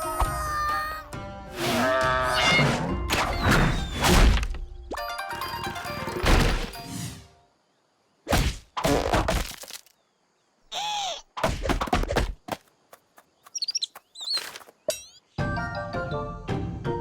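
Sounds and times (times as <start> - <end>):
cartoon thuds and cracks: 3.1 - 4.7, 8.3 - 9.9, 11.4 - 12.6
bird-like chirps: 12.8 - 15.4.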